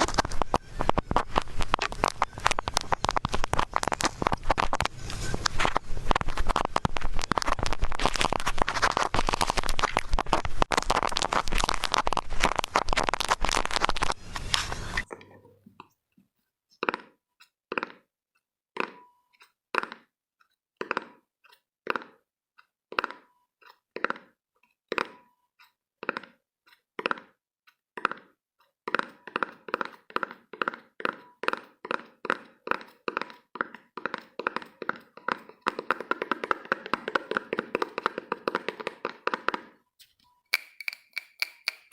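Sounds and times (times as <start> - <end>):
fast even tapping: 0.0 - 14.1
dense crackling: 0.0 - 15.0
resonant tapping sounds: 40.5 - 41.9.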